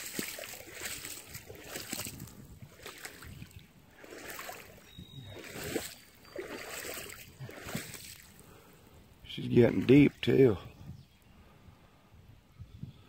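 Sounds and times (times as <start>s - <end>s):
boots sloshing through water: 0.0s - 8.6s.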